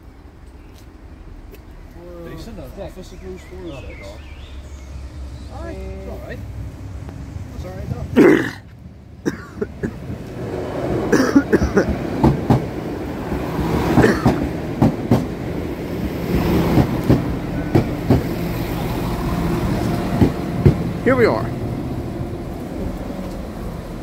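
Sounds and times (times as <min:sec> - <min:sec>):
train engine humming: 0:00.0 - 0:24.0
train wheel clicks: 0:14.2 - 0:15.3, 0:16.6 - 0:18.3.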